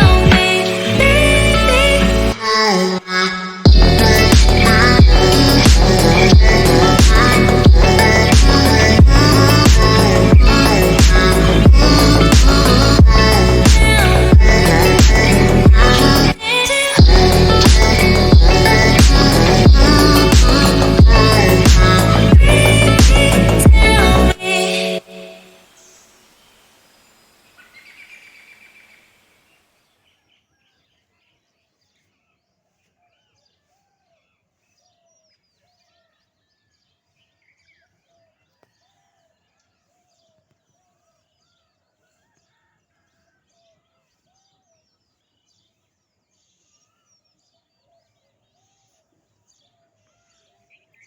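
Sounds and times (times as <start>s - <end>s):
music: 0.0s - 3.0s, 3.7s - 25.6s.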